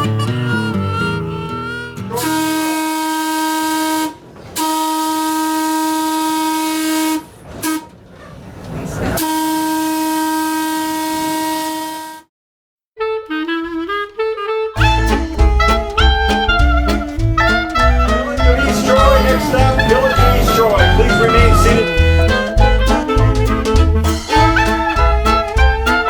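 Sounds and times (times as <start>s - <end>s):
train horn blasts: 2.1s - 8.0s, 9.2s - 12.3s, 14.8s - 26.0s.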